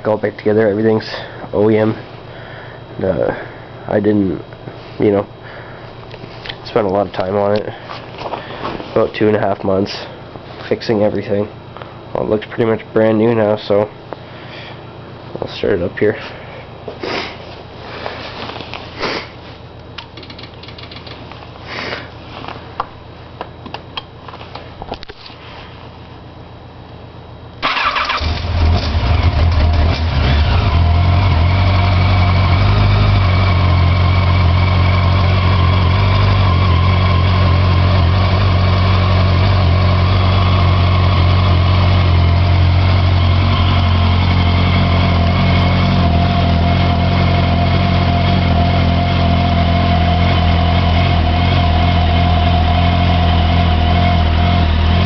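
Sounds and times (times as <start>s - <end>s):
motorcycle engine idling: 27.7s - 55.0s.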